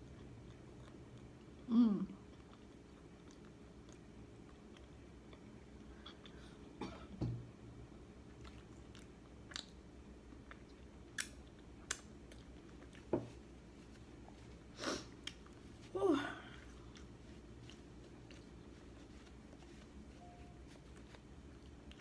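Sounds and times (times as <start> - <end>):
faint chewing: 0.0 - 6.8, 8.2 - 22.0
paper napkin rustling: 17.3 - 21.3.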